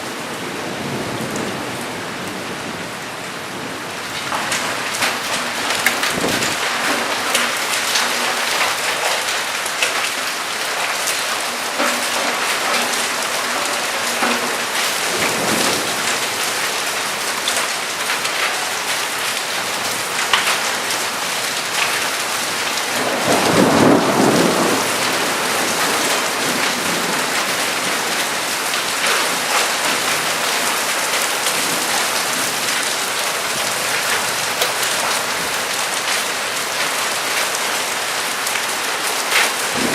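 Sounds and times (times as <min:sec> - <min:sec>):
heavy rain falling: 0:00.0 - 0:39.9
thunder rumble: 0:00.6 - 0:08.4, 0:22.9 - 0:28.4
thunder clap: 0:04.1 - 0:09.4, 0:22.8 - 0:28.2.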